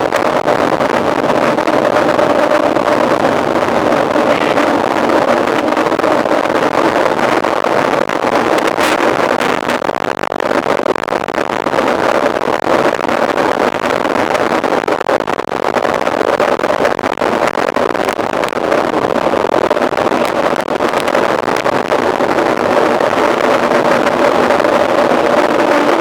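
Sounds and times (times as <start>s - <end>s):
mountain bike rushing: 0.0s - 6.9s, 22.4s - 26.0s.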